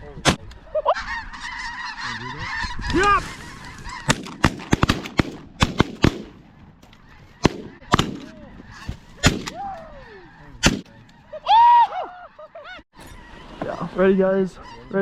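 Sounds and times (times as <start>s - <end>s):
geese honking: 0.6s - 4.5s, 6.4s - 9.2s, 9.8s - 15.0s
shotgun shots: 4.1s - 6.4s, 7.4s - 8.3s, 9.2s - 9.6s, 10.6s - 10.9s.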